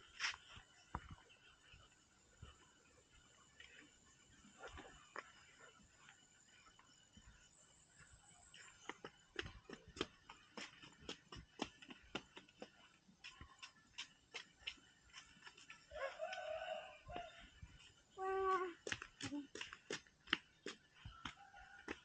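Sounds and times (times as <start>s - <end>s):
rooster crowing: 15.9s - 17.4s.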